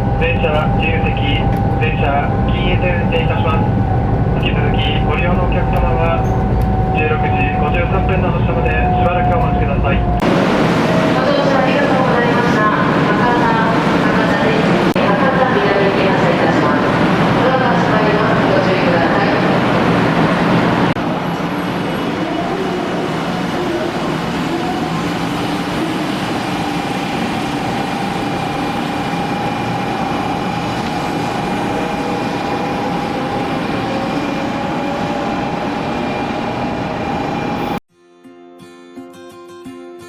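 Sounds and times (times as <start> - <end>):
train cabin rumble and hiss: 0.0 - 37.8
acoustic guitar music: 38.0 - 40.0.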